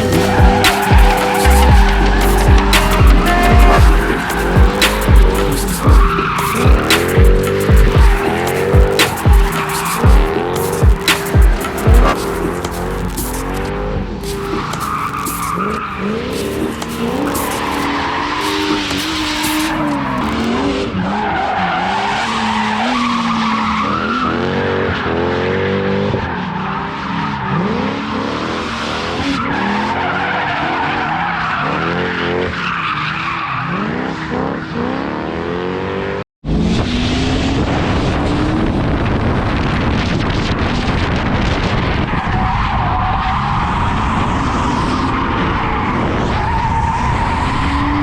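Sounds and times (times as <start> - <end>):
tyres squealing: 0.0 - 24.9
car engine revving hard: 0.0 - 30.8, 33.6 - 48.0.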